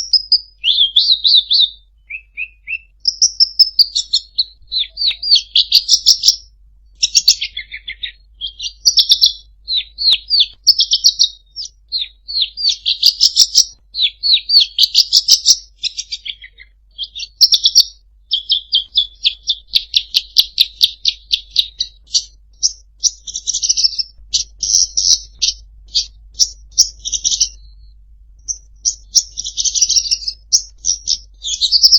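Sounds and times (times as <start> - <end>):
songbird chirps and trills: 0.0 - 31.9.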